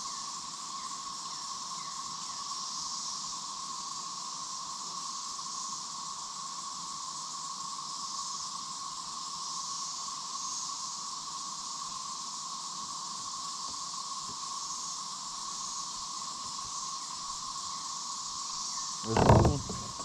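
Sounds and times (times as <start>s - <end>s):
insects buzzing: 13.3s - 20.0s.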